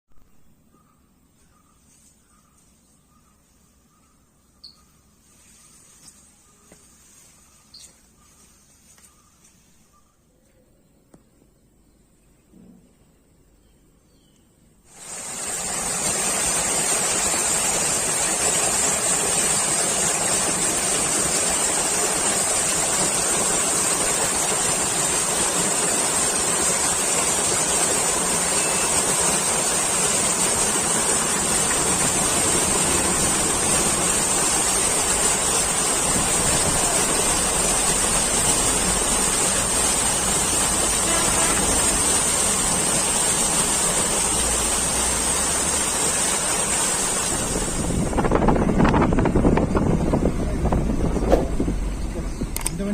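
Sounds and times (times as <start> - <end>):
high-pitched hiss: 14.9 - 49.0
waterfall rushing: 14.9 - 50.8.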